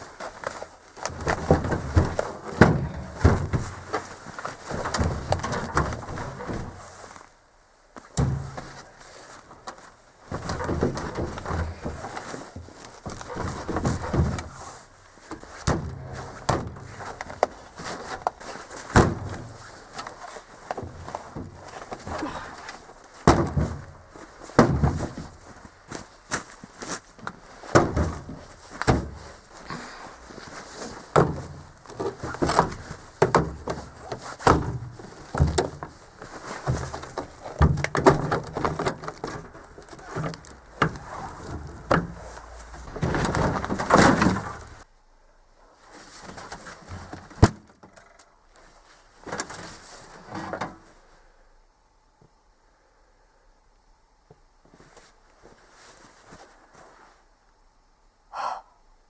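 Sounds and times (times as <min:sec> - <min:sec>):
washing machine knocks and rattles: 0:23.3 - 0:24.0.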